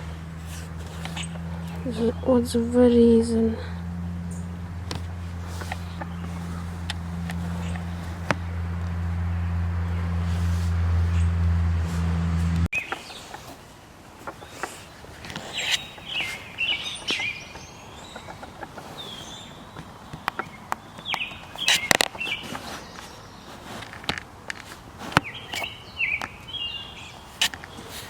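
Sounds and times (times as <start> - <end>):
loud steady low hum: 0.0 - 12.7
birds chirping: 0.0 - 28.0.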